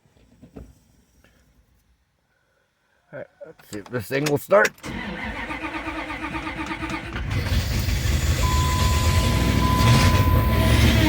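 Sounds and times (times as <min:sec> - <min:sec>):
truck engine cranking and starting: 0:04.7 - 0:11.0.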